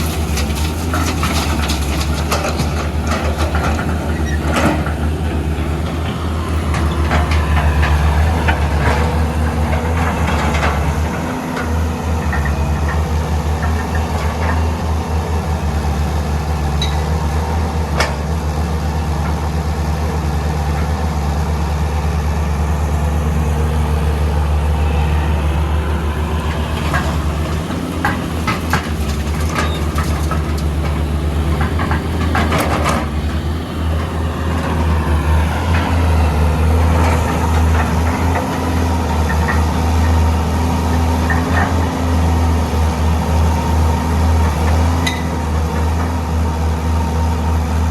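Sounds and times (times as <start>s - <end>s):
diesel engines humming: 0.0s - 47.9s
clanks and knocks: 26.8s - 33.4s.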